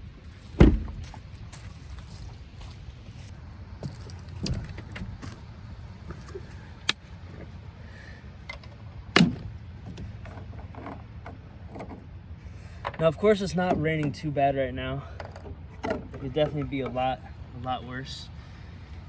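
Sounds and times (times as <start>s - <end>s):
steady low rumble: 0.0s - 19.0s
clicks and knocks of gear: 3.8s - 7.5s.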